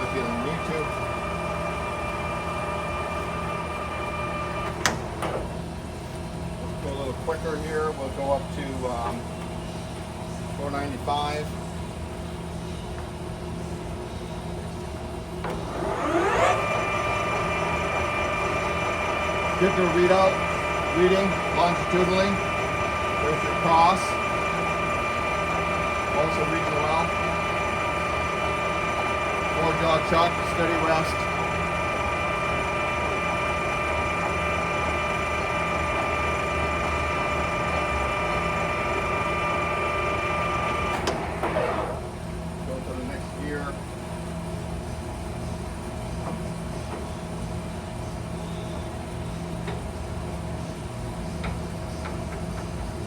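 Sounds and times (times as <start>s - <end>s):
lathe gears whining: 0.0s - 5.6s, 15.0s - 43.4s
lathe motor humming: 0.0s - 9.2s, 14.9s - 43.4s.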